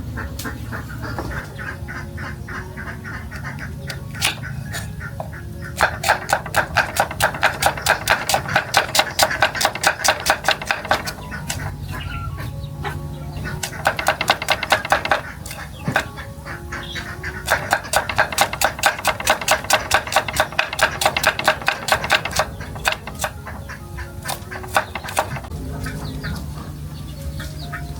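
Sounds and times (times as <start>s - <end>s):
rapid even knocking: 5.2s - 11.8s, 13.4s - 16.2s, 17.4s - 25.6s.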